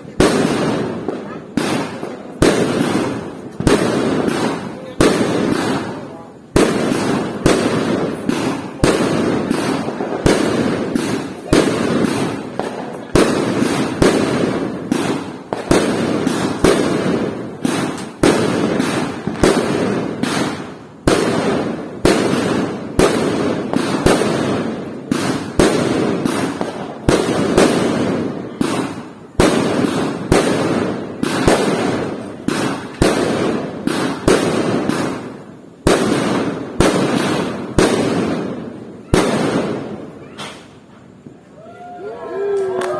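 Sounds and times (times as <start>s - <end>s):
fireworks bangs echoing: 0.0s - 41.4s.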